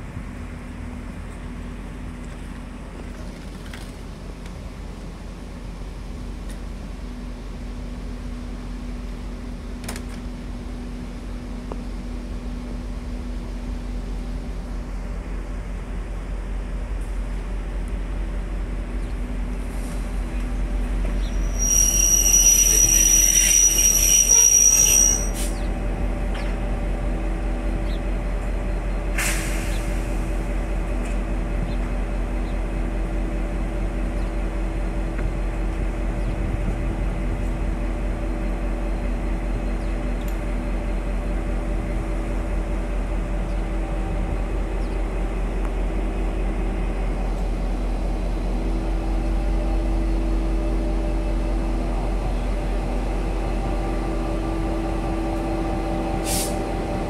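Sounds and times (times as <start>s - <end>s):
train diesel engine running: 0.0s - 57.0s
high-pitched metallic squeal: 21.1s - 25.7s.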